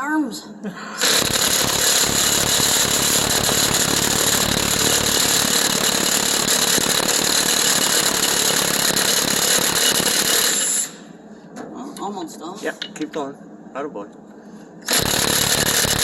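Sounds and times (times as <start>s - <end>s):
impact gun hammering: 1.0s - 10.7s.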